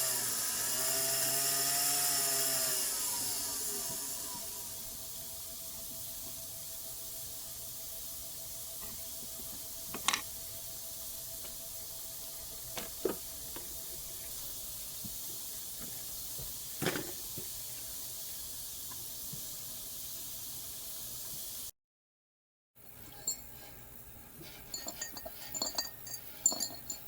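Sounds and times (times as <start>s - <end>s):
steady hiss: 3.1s - 21.7s.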